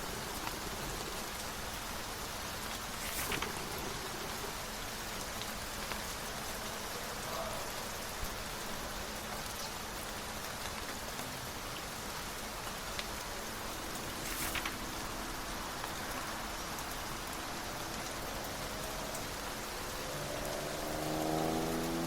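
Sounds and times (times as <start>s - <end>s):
raindrop ticks: 0.0s - 22.0s
steady rain hiss: 0.0s - 22.0s.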